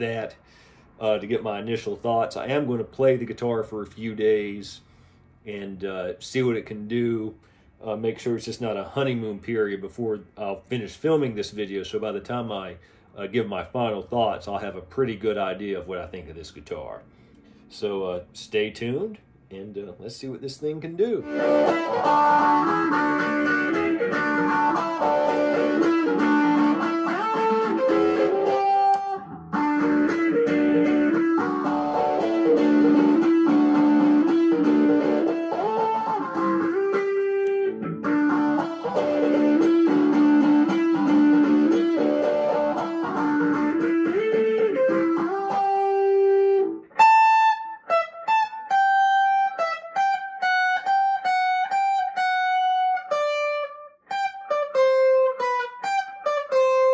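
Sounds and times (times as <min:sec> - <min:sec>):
overdriven electric guitar riff: 0:21.2 - 0:56.9.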